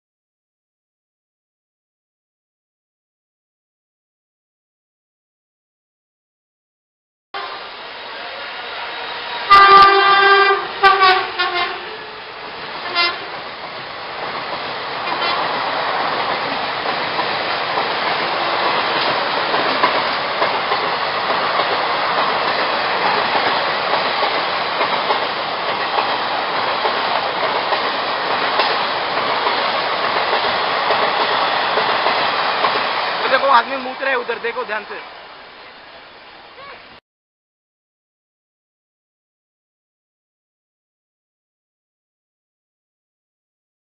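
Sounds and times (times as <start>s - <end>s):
train wheels and coaches rushing: 7.4s - 36.9s
locomotive horn: 9.5s - 12.3s, 12.9s - 13.3s.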